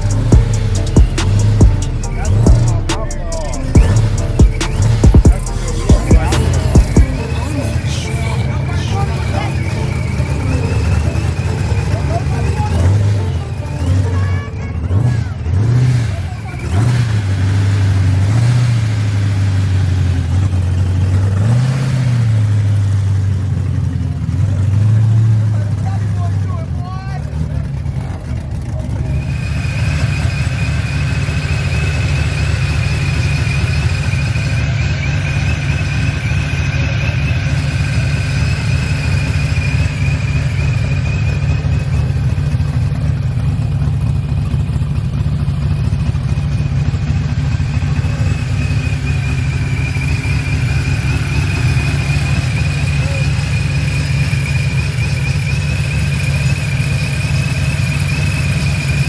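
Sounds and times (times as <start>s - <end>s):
high wavering squeal: 0.0s - 14.9s, 48.0s - 59.0s
car engine running hard: 0.0s - 59.0s.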